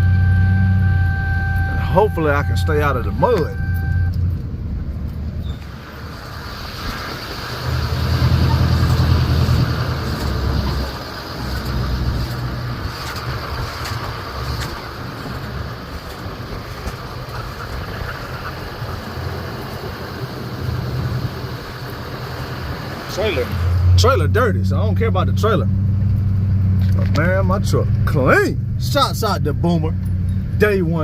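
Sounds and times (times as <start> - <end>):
diesel engine drone: 0.0 - 31.0
tyres hissing on dirt: 5.6 - 24.0.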